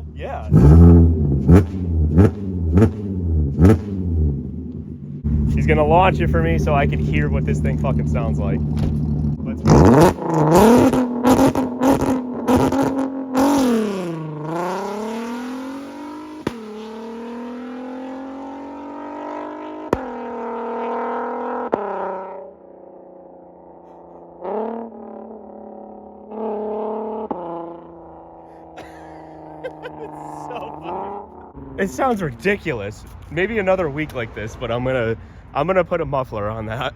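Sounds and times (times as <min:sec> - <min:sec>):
car engine revving through gears: 0:00.0 - 0:22.4, 0:23.2 - 0:31.6
exhaust pops crackling: 0:00.4 - 0:13.6, 0:16.4 - 0:16.9, 0:19.9 - 0:20.2.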